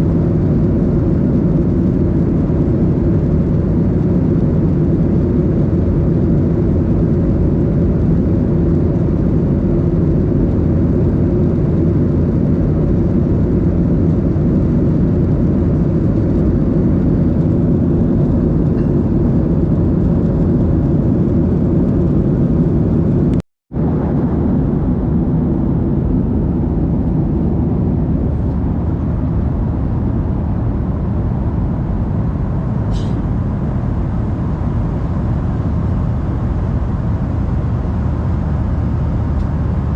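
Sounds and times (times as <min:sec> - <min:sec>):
airplane cabin engine rumble: 0:00.0 - 0:39.9
rushing air: 0:23.0 - 0:39.9.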